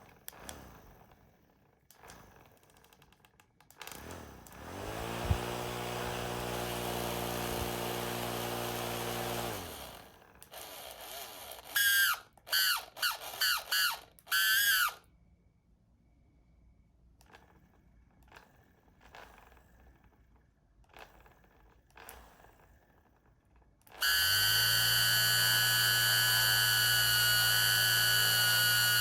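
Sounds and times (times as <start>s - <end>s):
small motor whining: 0.0s - 1.3s, 3.8s - 15.0s, 23.9s - 29.0s
short high squeals: 11.6s - 15.0s.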